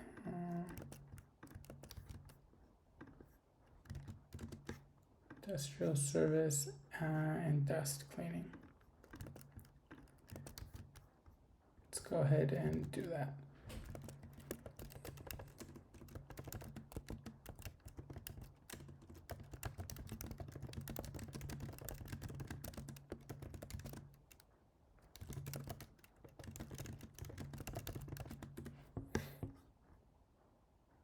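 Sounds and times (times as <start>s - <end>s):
fast typing on keyboard: 0.0s - 3.2s, 3.8s - 5.0s, 8.5s - 11.3s, 12.0s - 29.4s.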